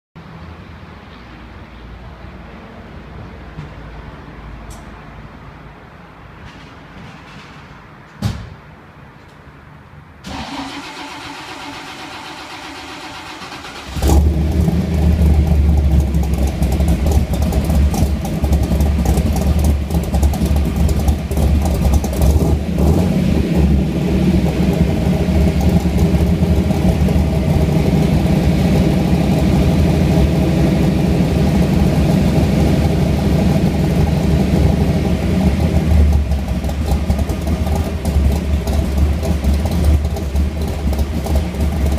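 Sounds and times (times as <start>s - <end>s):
car engine cranking and idling: 10.2s - 41.9s.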